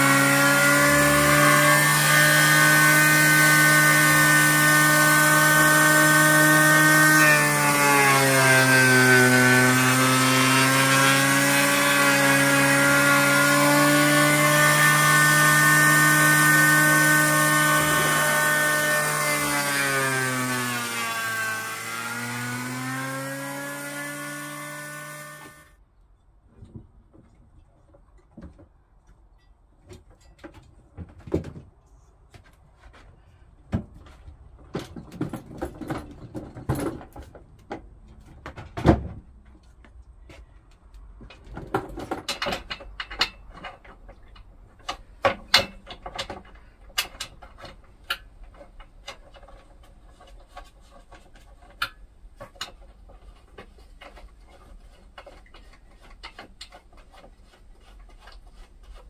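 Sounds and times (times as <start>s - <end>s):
knocks and rattles of objects handled: 26.2s - 59.0s.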